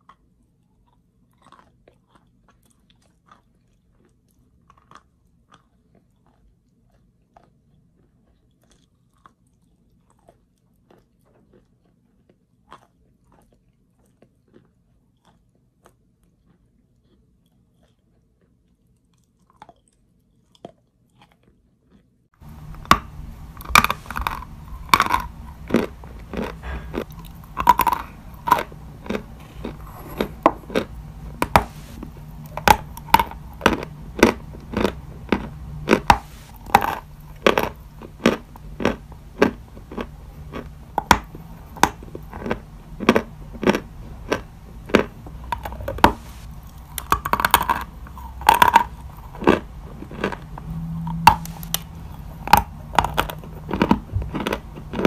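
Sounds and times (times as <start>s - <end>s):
chewing chalk crunches: 0.0s - 55.0s
low steady hum: 22.4s - 55.0s.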